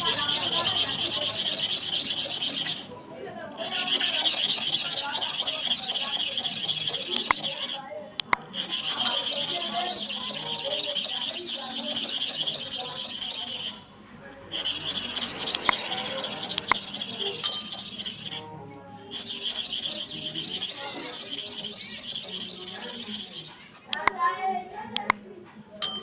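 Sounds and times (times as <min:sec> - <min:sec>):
clipper blade scraping on sharpener: 0:03.6 - 0:13.8, 0:14.6 - 0:18.4, 0:19.1 - 0:24.2.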